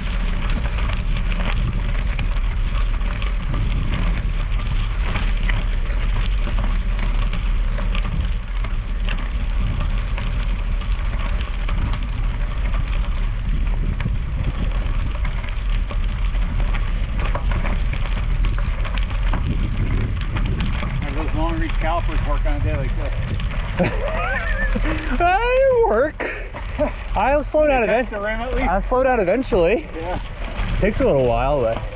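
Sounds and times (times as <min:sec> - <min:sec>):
bicycle tyres on gravel: 0:00.0 - 0:31.9
wind rush on microphone: 0:00.0 - 0:31.9.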